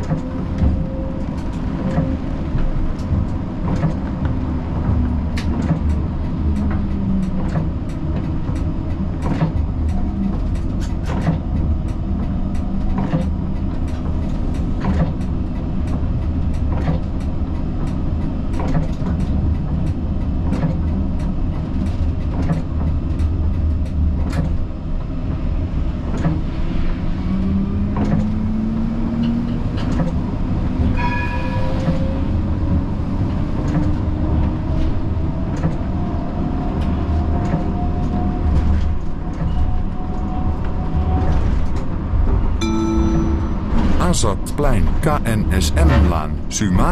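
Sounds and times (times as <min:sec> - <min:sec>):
tram rumbling on rails: 0:00.0 - 0:44.0
brief high tone: 0:42.6 - 0:46.9.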